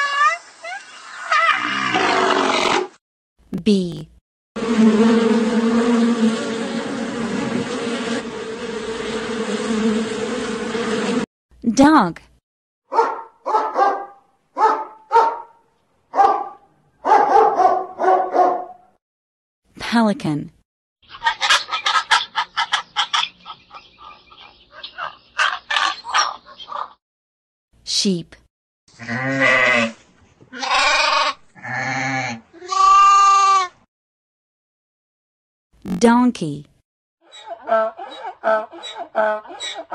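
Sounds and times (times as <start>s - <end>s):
bee buzzing: 4.6s - 11.3s
pelican calls: 21.2s - 27.0s, 37.3s - 39.9s.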